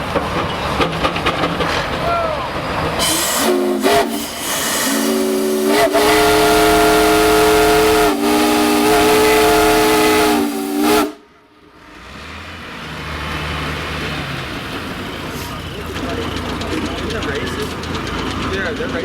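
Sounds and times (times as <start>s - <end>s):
steam whistle chord: 3.0s - 11.2s.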